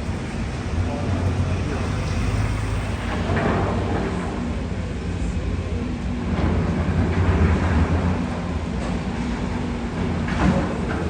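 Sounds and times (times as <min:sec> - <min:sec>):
city street noise: 0:00.0 - 0:11.0
heavy engine low hum: 0:00.0 - 0:11.0.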